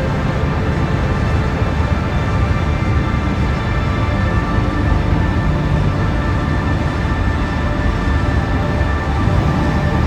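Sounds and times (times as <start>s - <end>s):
dark ominous background music: 0.0s - 10.0s
vehicle and road noise: 0.0s - 10.0s.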